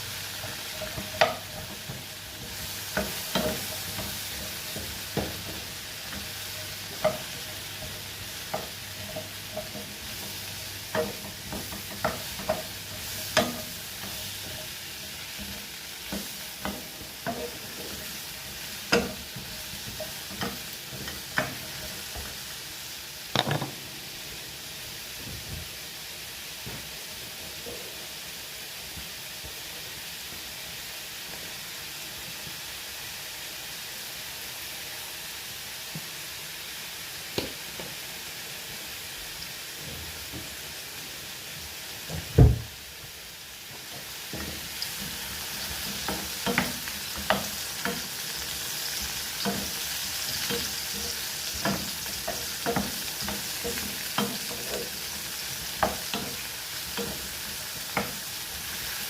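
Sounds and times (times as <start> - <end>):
food sizzling in a pan: 0.0 - 59.0
utensil tapping and scraping pan: 0.3 - 22.4, 43.8 - 58.3
loud knock: 42.4 - 42.7.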